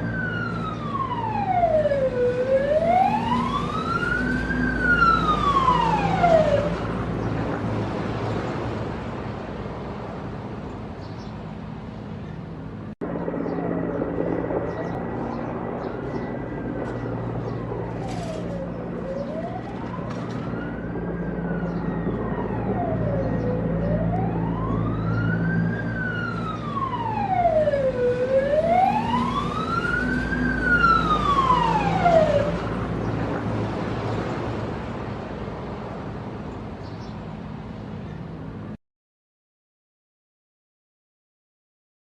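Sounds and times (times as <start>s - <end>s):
siren wailing: 0.0s - 7.4s, 13.0s - 34.0s.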